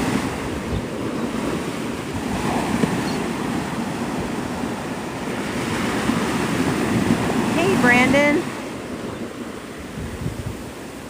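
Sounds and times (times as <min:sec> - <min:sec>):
surf washing onto beach: 0:00.0 - 0:11.0
wind rumbling on microphone: 0:00.0 - 0:11.0.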